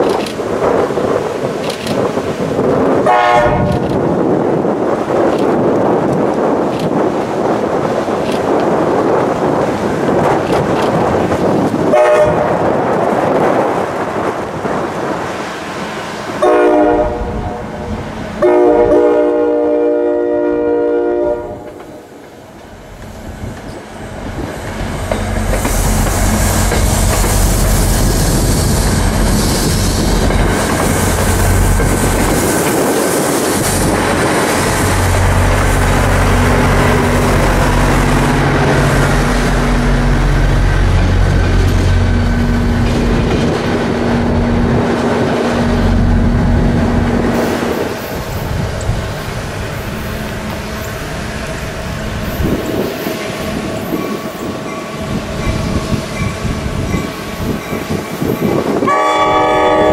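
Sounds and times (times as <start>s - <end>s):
diesel locomotive drone: 0.0s - 59.9s
wheels rumbling on rails: 0.0s - 59.9s
train horn blasts: 3.0s - 3.8s, 11.9s - 12.7s, 16.4s - 22.1s, 58.7s - 59.9s.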